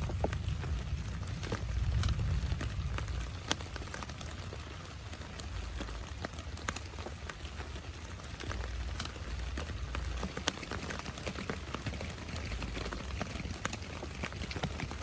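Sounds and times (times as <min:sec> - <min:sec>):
low rumble: 0:00.0 - 0:04.6
heavy rain falling: 0:00.0 - 0:15.0
raindrops ticking: 0:00.0 - 0:15.0.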